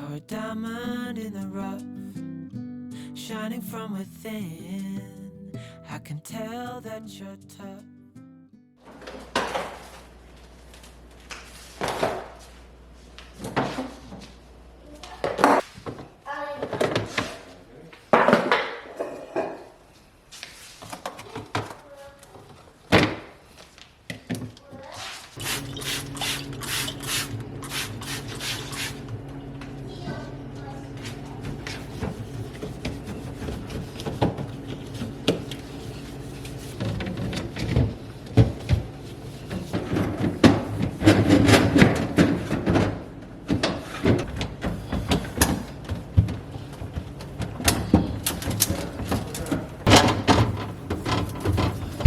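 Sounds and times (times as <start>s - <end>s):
steady low hum: 25.4s - 52.0s.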